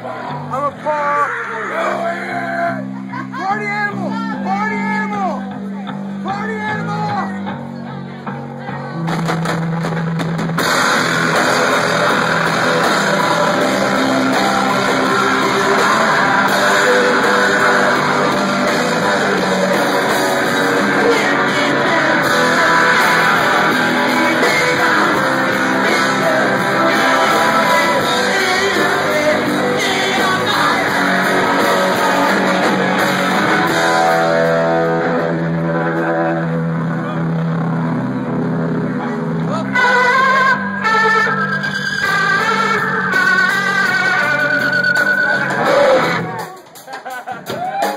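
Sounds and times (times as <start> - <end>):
live rock band playing: 0.0 - 47.9
electric guitar: 5.4 - 47.9
person singing: 11.8 - 36.6, 39.4 - 46.7.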